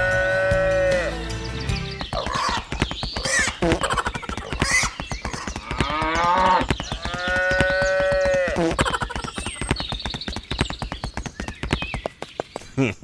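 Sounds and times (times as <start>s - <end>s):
backing music with quick beat: 0.0s - 2.2s.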